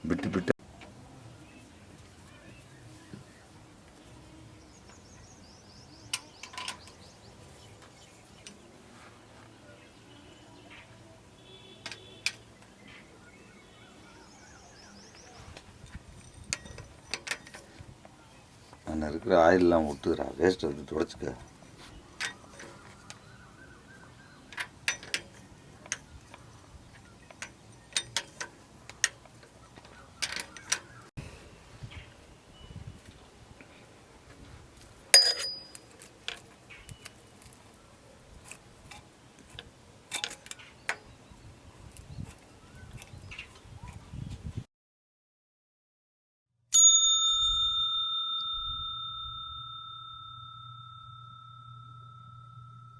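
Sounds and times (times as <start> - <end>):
bell ringing: 35.2 - 35.8, 46.8 - 52.9
metallic clicks of tools: 38.4 - 41.0.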